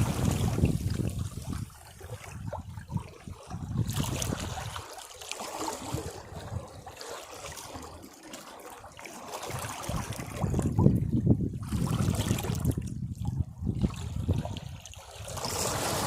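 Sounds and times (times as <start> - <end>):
sea waves breaking on rocks: 0.0 - 2.4, 14.0 - 16.0.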